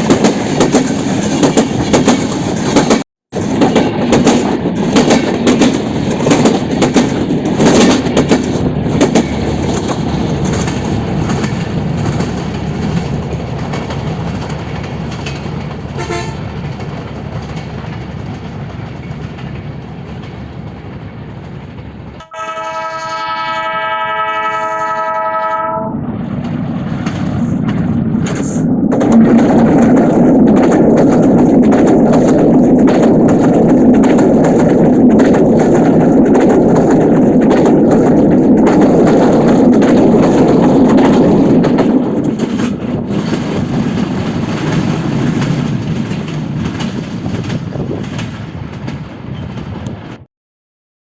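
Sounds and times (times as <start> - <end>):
wheels clacking on rails: 0.0 - 22.3, 26.1 - 50.2
train rumbling past: 0.0 - 50.3
train horn chord: 16.0 - 16.4, 22.2 - 26.0.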